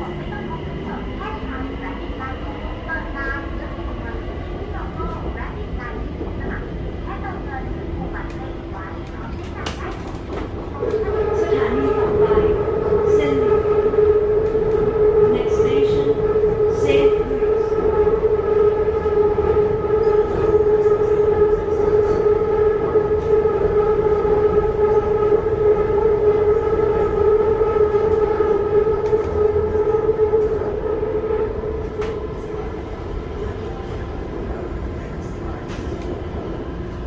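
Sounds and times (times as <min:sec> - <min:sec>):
train running gear rumble: 0:00.0 - 0:37.0.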